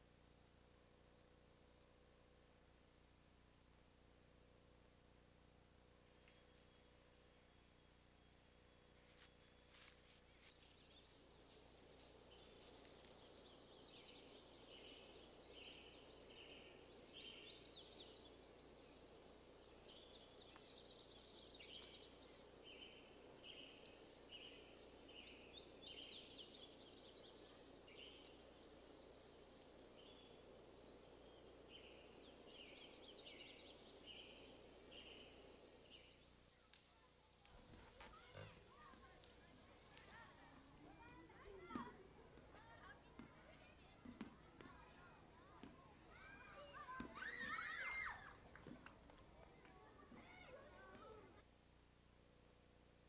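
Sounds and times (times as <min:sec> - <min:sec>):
faint outdoor ambience: 0:00.0 - 0:53.0.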